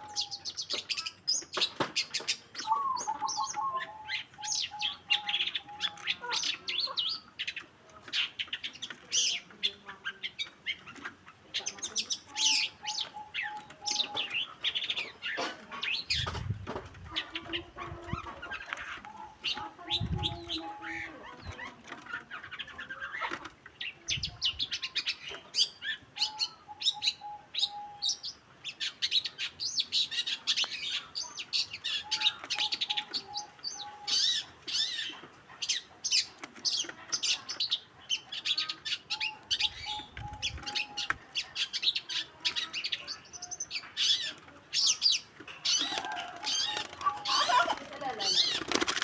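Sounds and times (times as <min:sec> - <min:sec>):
bird chirping and whistling: 0:02.6 - 0:05.0.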